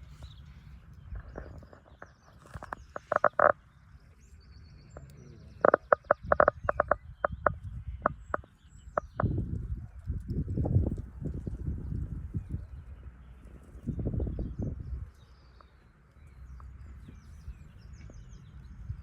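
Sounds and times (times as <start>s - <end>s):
frog croaking: 2.4s - 3.6s, 5.0s - 9.4s.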